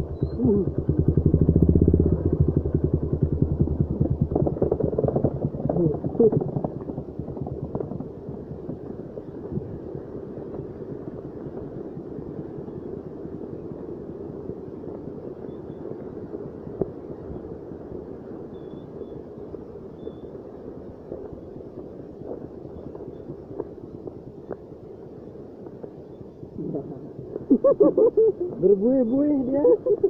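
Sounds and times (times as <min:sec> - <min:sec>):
motorcycle engine running: 0:00.0 - 0:06.4
steady low rushing noise: 0:00.0 - 0:12.5.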